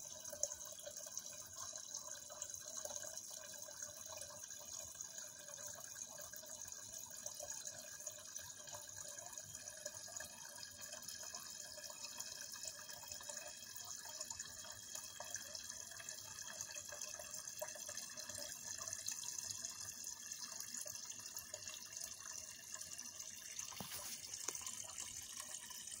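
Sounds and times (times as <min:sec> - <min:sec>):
water running: 0:23.4 - 0:26.0.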